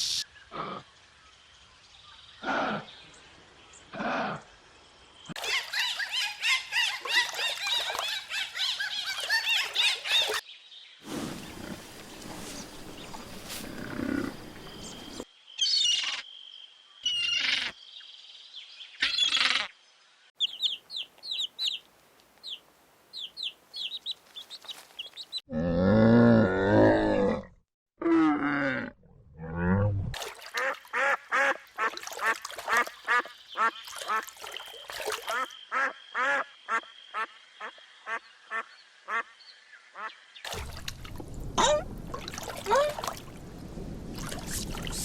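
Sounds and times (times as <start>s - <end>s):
deep drawn-out animal call: 0.5s - 0.9s, 2.4s - 3.0s.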